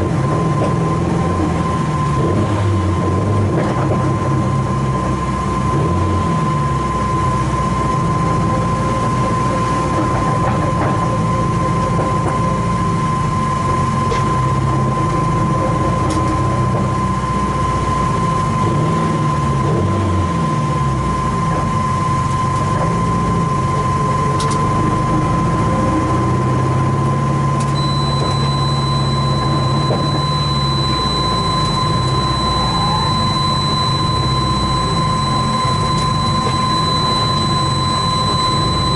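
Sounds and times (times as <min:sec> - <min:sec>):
race car engine: 0:00.0 - 0:38.9
steady high-pitched tone: 0:27.6 - 0:38.9.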